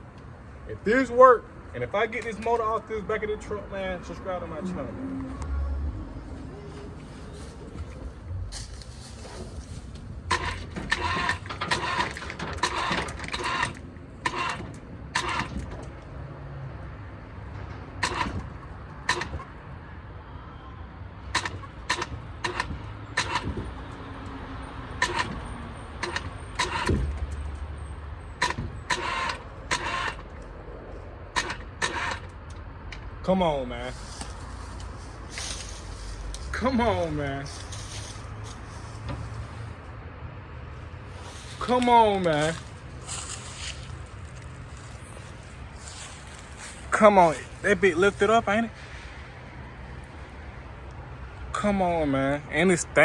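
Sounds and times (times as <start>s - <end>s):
low steady rumble: 0.0s - 11.6s.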